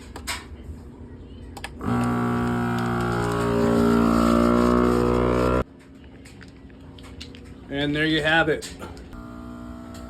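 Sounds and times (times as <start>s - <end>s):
vacuum sealer pump humming: 1.8s - 5.6s, 9.2s - 10.0s.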